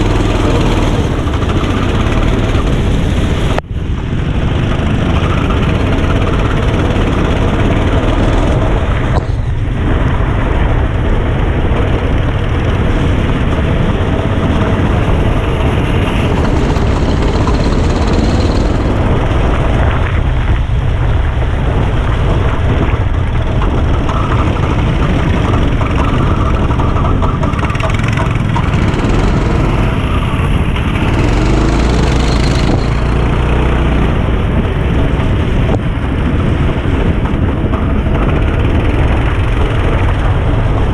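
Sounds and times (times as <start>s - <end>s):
go-kart engine running: 0.0s - 40.9s.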